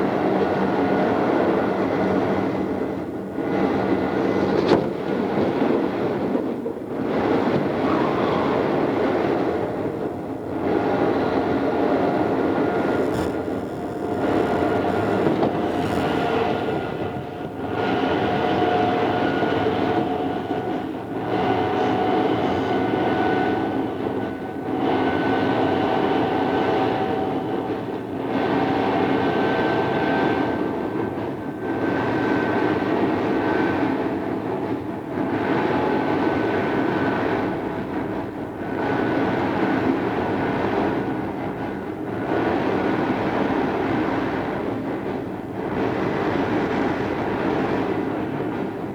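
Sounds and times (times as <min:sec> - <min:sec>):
electric motor whine: 0:12.0 - 0:17.3.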